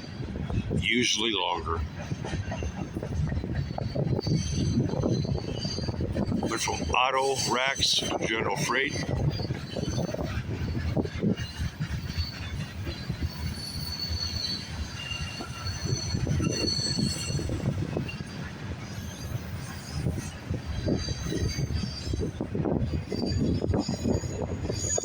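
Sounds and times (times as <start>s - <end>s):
knocks and clacks of train cars: 0.0s - 25.0s
train wheels rumbling on rail: 0.0s - 25.0s
high wheel squeal: 9.0s - 18.4s, 22.9s - 25.0s.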